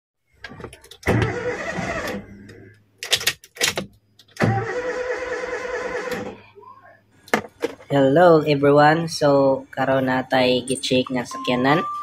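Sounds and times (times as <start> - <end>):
starter motor cranking engine: 1.0 - 2.3, 4.4 - 6.4.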